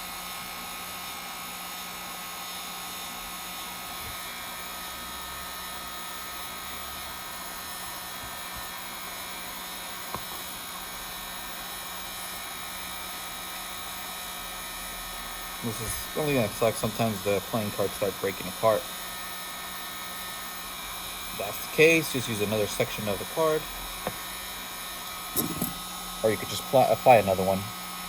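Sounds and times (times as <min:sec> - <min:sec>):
heat gun blowing: 0:15.7 - 0:27.6.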